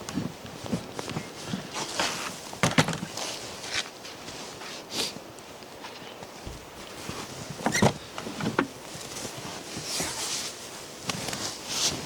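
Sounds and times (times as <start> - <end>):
rustling: 0.5 - 12.0
objects knocking and clattering: 2.6 - 3.1.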